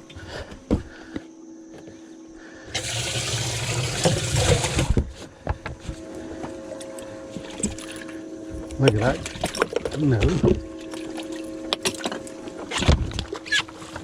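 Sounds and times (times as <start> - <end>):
water trickling: 2.7 - 4.9, 6.8 - 12.6.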